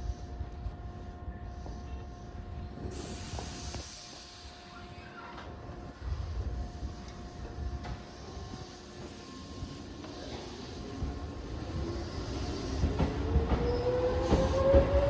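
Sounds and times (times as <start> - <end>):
train rumbling: 5.4 - 15.0.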